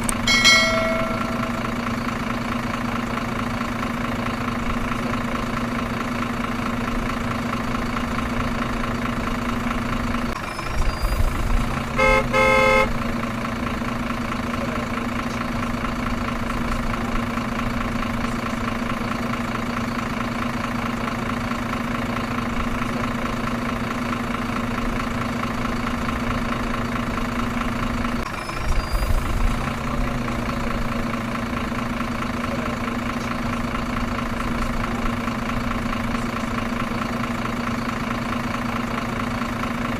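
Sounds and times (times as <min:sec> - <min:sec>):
truck engine idling: 0:00.0 - 0:39.9
horn honking: 0:00.3 - 0:02.0, 0:11.8 - 0:13.2.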